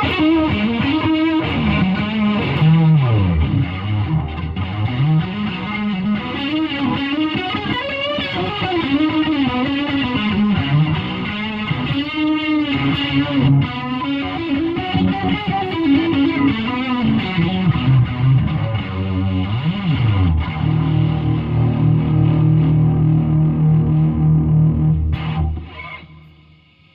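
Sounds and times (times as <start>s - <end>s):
distorted electric guitar lead: 0.0s - 26.9s.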